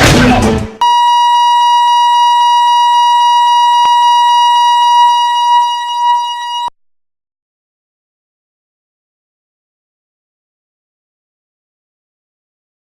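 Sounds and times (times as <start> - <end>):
high-pitched electronic beep: 0.8 - 6.7.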